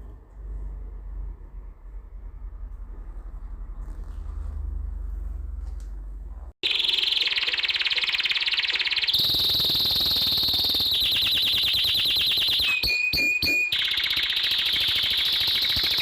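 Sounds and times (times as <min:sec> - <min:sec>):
canary singing trills: 0:06.6 - 0:16.0.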